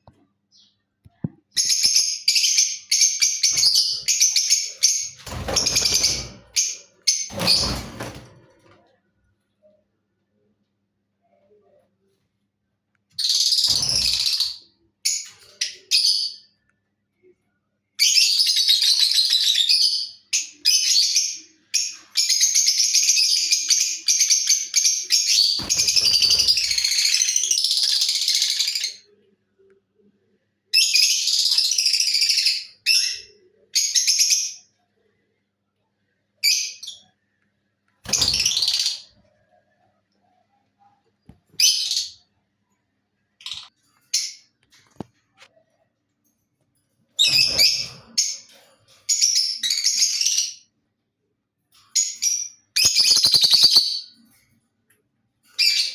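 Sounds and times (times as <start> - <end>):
lovebird chirping: 52.0 - 54.2.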